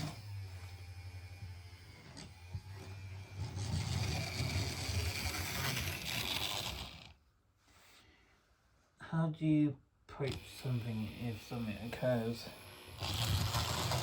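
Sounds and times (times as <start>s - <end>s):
model train motor hum: 0.0s - 7.2s, 10.3s - 14.0s.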